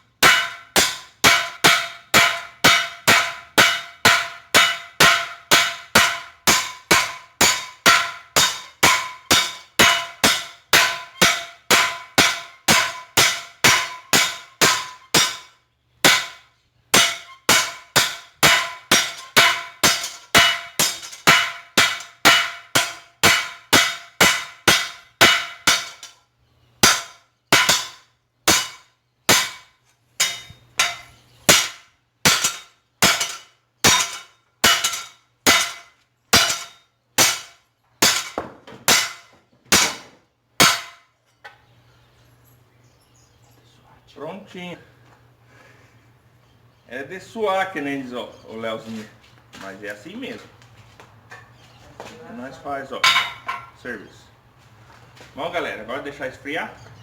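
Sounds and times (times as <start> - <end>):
hammer striking metal on anvil: 0.2 - 26.2, 26.8 - 40.0, 40.6 - 41.0, 53.0 - 53.7.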